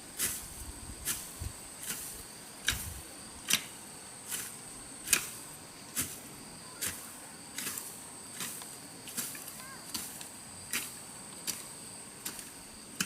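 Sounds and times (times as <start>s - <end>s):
hand tool chopping into soil: 0.2s - 5.4s, 6.0s - 6.2s, 6.8s - 7.0s, 7.6s - 13.0s.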